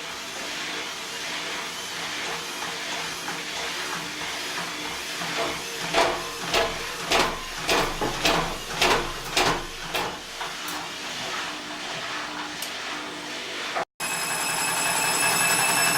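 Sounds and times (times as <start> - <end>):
washing machine running: 0.0 - 15.9
washing machine drum banging: 4.7 - 10.7.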